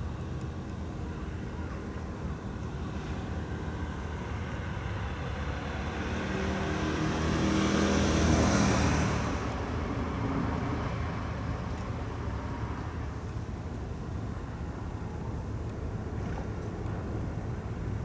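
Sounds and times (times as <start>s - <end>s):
car passing close by: 5.8s - 9.8s.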